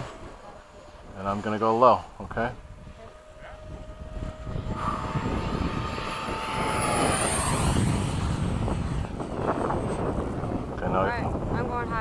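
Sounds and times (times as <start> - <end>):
model jet fan whining pass: 0.0 - 12.0.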